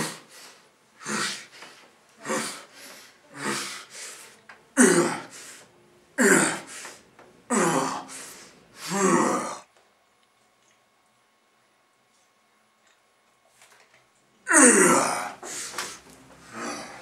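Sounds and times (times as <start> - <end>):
man breathing hard: 0.0 - 4.4, 6.5 - 9.6, 15.1 - 17.0.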